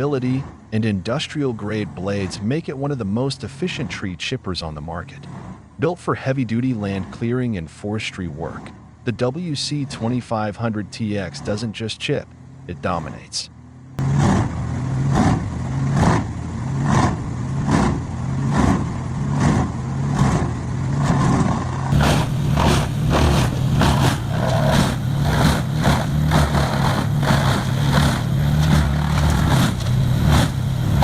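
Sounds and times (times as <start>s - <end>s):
wood chipper engine droning: 13.6s - 31.0s
wood cracking in chipper: 21.9s - 31.0s.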